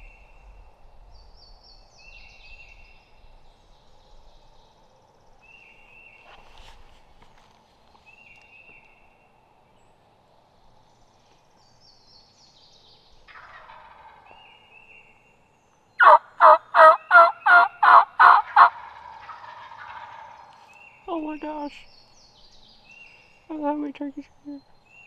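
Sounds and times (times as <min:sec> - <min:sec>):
faint songbird calls: 0:00.0 - 0:25.0
wild turkey yelping: 0:13.3 - 0:14.6, 0:16.0 - 0:20.8.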